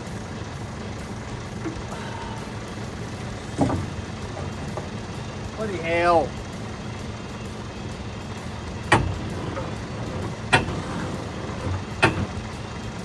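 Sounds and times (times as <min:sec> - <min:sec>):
lorry engine idling: 0:00.0 - 0:13.0
sharp knocks: 0:03.6 - 0:04.9, 0:08.9 - 0:12.4.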